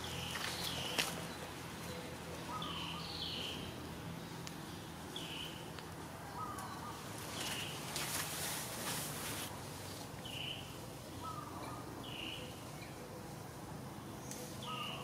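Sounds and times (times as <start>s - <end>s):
bird chirping: 0.0s - 5.7s, 14.2s - 15.0s.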